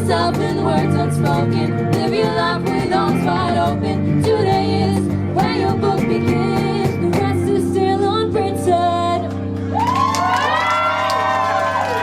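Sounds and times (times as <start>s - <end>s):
singers singing runs: 0.0s - 9.2s
live band playing pop song: 0.0s - 9.6s
audience whooping and cheering: 9.6s - 12.0s.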